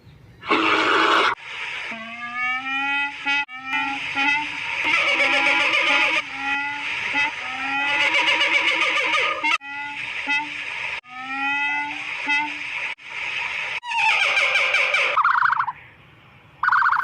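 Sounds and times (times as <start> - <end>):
animal nasal rising calls: 0.4 - 10.4.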